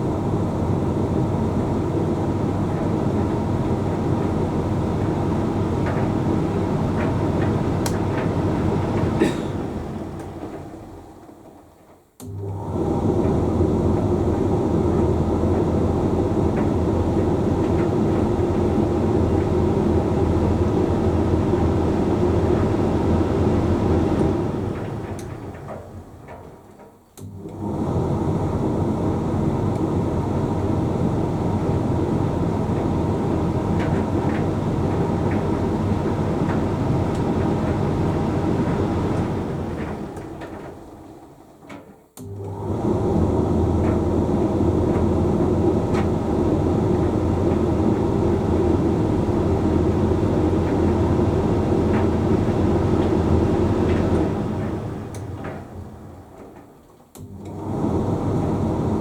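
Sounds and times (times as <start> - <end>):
tumble dryer running: 0.0 - 59.0.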